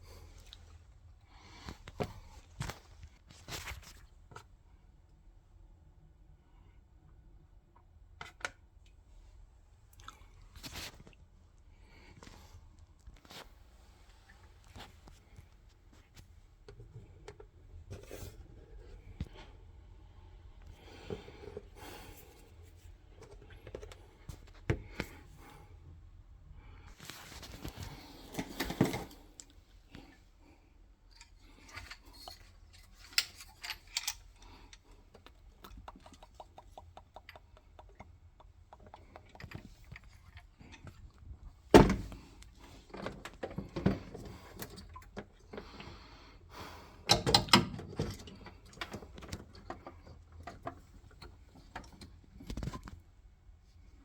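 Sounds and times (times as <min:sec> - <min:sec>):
tools clicking and scraping on pipes: 0:31.1 - 0:41.3, 0:47.0 - 0:53.0.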